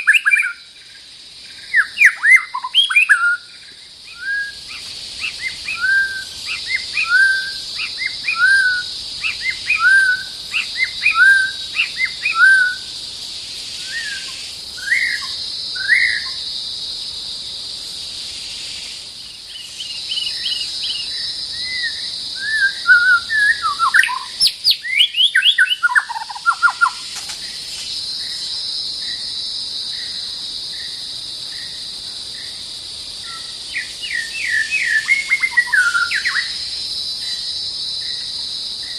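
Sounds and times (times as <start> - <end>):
steady high hiss: 0.0 - 38.9
bird whistling and trilling: 1.7 - 3.5, 4.1 - 12.9, 13.9 - 16.3, 21.6 - 27.0, 34.1 - 36.5.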